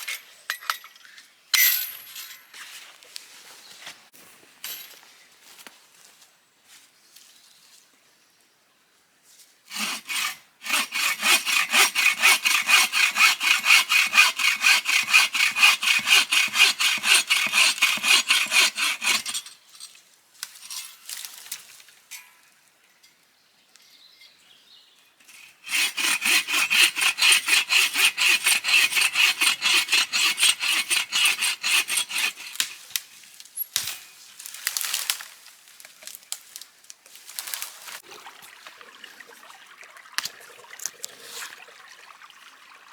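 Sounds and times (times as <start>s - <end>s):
hand saw cutting wood: 9.7s - 19.4s, 25.3s - 33.0s.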